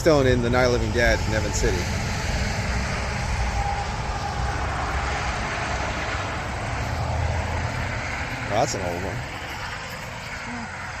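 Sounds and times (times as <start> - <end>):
vehicle passing on road: 0.0 - 11.0.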